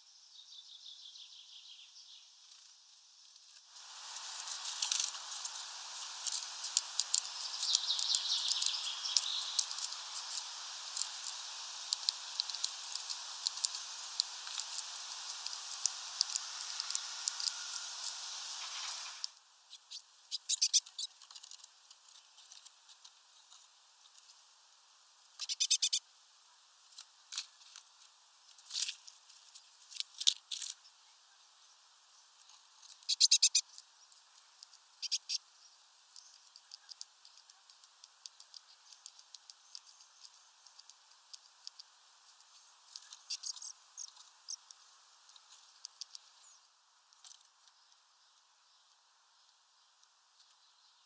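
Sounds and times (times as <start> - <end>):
faint steady hiss: 0.0 - 51.0
small birds tapping at feeder: 3.9 - 21.7, 36.0 - 46.5
rapid ticking: 4.3 - 19.0.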